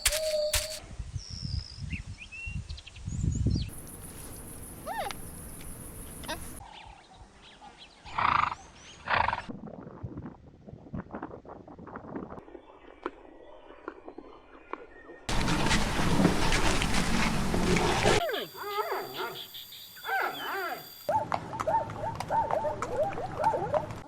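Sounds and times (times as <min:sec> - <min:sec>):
animal calls: 0:04.7 - 0:06.6, 0:15.3 - 0:24.0
faint birds chirping: 0:18.2 - 0:21.1.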